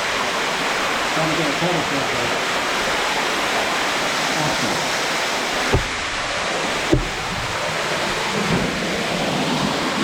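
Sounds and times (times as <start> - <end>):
waterfall rushing: 0.0 - 10.0
dull thumps: 5.6 - 6.2, 6.8 - 7.6.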